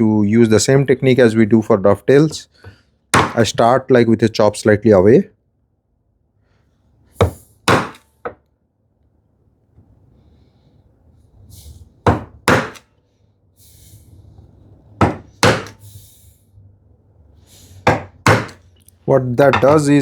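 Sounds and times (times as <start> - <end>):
chisel knocks into wood: 3.2 - 3.4, 12.1 - 12.8, 15.0 - 15.8, 17.9 - 18.6.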